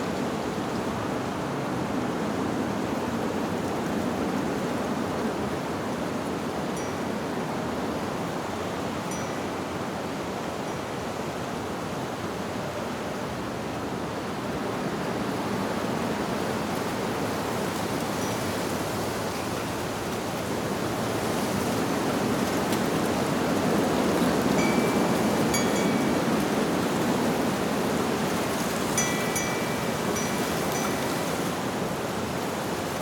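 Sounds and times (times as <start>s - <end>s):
wind rushing through leaves: 0.0s - 33.0s
wind chimes tinkling: 9.1s - 9.5s, 24.5s - 27.6s, 28.8s - 32.0s.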